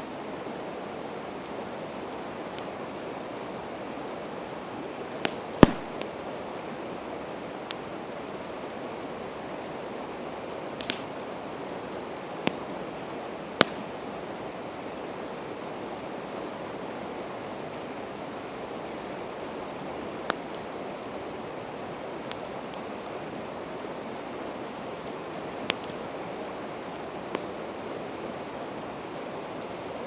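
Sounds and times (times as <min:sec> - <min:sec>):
campfire crackling: 0:00.0 - 0:30.0
sharp fire pops: 0:05.2 - 0:06.2, 0:10.8 - 0:11.2, 0:12.4 - 0:12.8, 0:13.5 - 0:14.0, 0:26.9 - 0:27.6.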